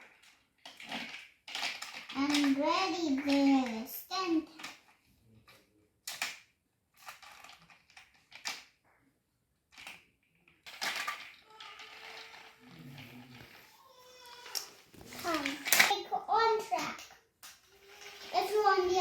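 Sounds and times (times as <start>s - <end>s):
toy track clattering rattle: 0.0s - 5.0s, 7.0s - 8.7s, 10.6s - 13.6s, 14.2s - 19.0s
toy train pieces clicking: 0.1s - 5.0s, 6.1s - 6.4s, 7.0s - 8.7s, 10.6s - 13.6s, 14.2s - 19.0s.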